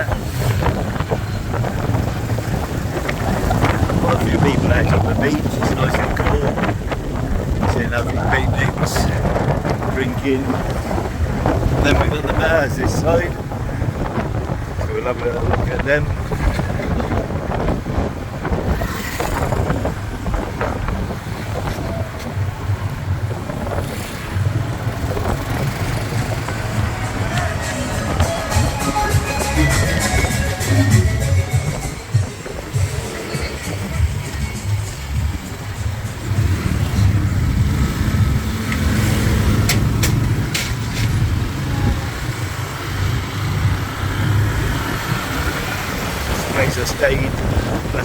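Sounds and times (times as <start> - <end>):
road rumble: 0.0 - 48.0
wind on microphone: 0.0 - 48.0
motorbike engine: 16.4 - 47.9.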